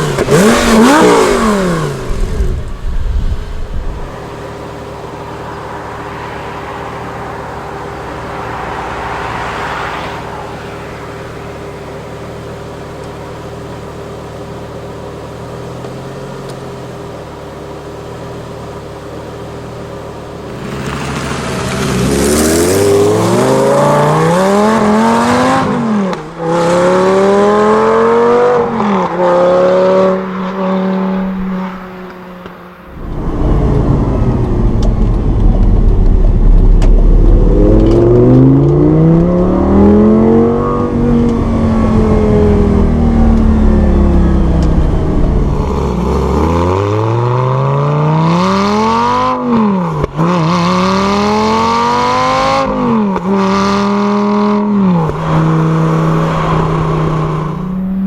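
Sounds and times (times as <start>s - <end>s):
sports car engine accelerating hard: 0.0s - 58.0s.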